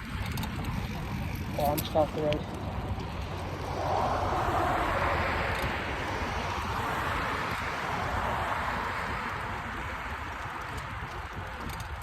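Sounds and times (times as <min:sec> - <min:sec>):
wind rumble on microphone: 0:00.0 - 0:12.0
car passing by: 0:03.3 - 0:10.6.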